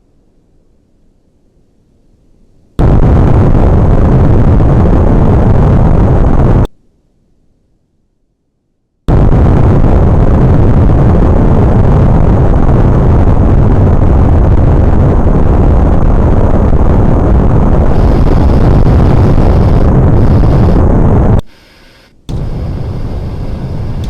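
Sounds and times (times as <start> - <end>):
airplane noise: 15.1 - 24.0.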